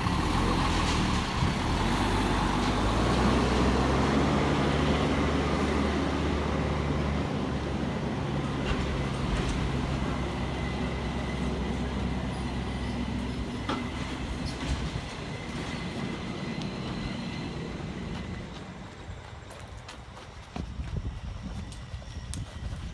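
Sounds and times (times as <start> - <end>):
locomotive engine drone: 0.0 - 22.9
rolling train cars: 0.0 - 22.9
train clanks: 0.0 - 22.9
faint wheel squeal: 12.2 - 18.3.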